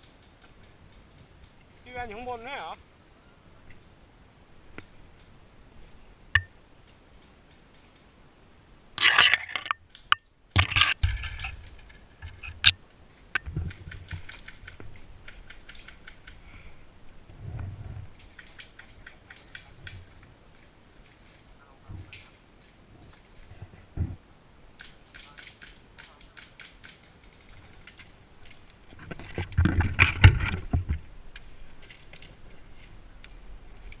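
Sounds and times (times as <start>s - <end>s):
sharp clicks: 13.4s - 16.4s, 24.8s - 28.6s.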